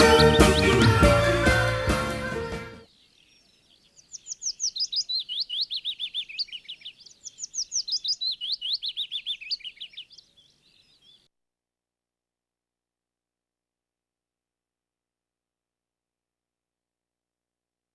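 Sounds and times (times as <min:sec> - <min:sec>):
bird song with rapid high chirps: 0:00.0 - 0:02.0, 0:02.8 - 0:11.3.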